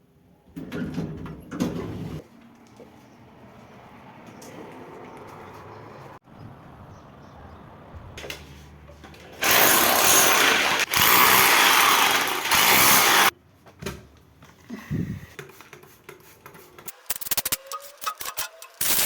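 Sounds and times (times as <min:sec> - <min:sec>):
power tool running: 0:09.4 - 0:13.3.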